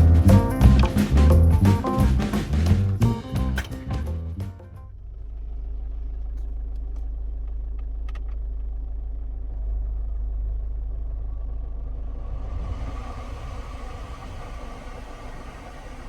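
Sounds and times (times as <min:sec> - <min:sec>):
car engine idling: 0:00.0 - 0:16.0
faint clicks: 0:06.3 - 0:08.5.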